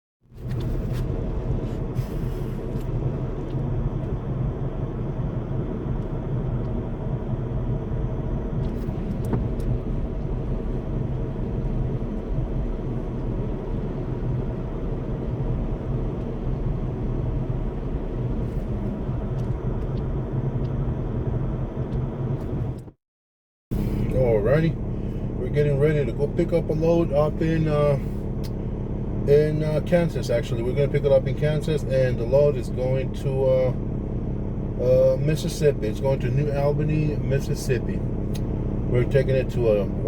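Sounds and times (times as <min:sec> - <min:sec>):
diesel truck engine rumbling: 0:00.2 - 0:23.0, 0:23.7 - 0:40.0.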